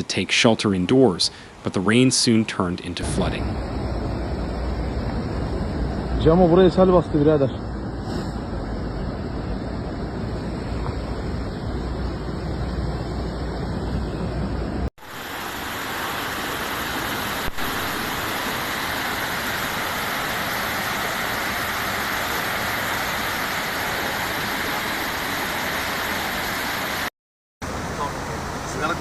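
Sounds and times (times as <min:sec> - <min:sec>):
water rushing: 0:15.0 - 0:29.0.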